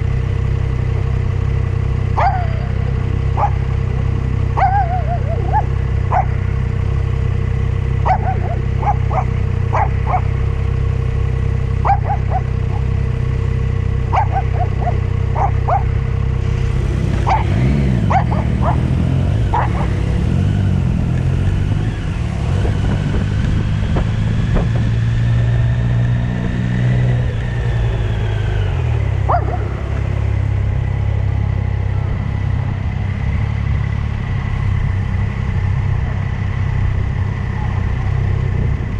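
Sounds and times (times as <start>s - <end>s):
motorcycle engine running: 0.0s - 38.9s
dog barking: 2.1s - 3.8s, 4.5s - 6.6s, 8.0s - 10.4s, 11.8s - 12.9s, 14.1s - 16.0s, 17.2s - 20.2s, 29.2s - 30.0s.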